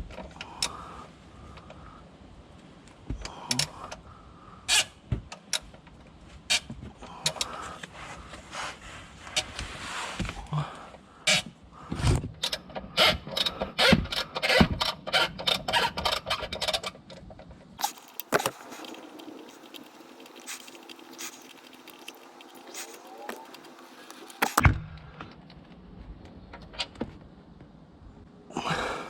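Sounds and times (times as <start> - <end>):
hand tools clicking and clanking: 17.8 - 24.6
steady low hum: 17.8 - 25.3.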